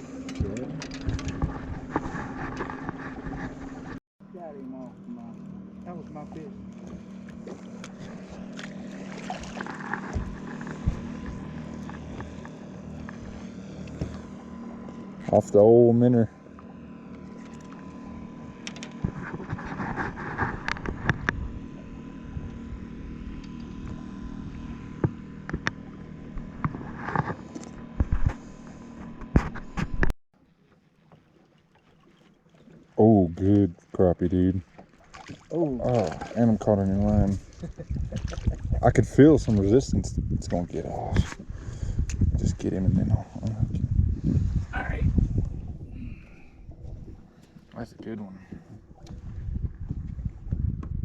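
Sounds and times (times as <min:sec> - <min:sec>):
low hum: 0:00.0 - 0:30.1, 0:35.0 - 0:51.0
wind rumble: 0:09.3 - 0:13.5, 0:36.6 - 0:47.4, 0:48.8 - 0:51.0.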